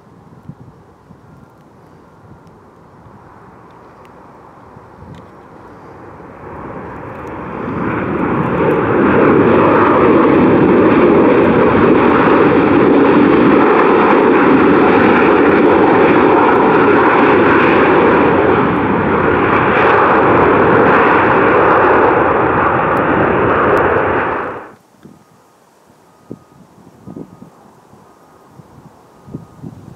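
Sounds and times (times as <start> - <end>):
jet engines roaring: 1.6 - 24.8.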